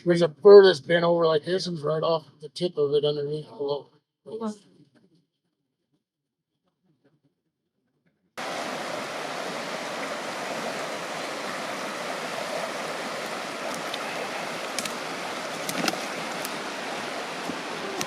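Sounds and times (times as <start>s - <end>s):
creek water flowing: 8.4s - 18.0s
faint clicks: 13.6s - 16.6s, 17.4s - 18.0s.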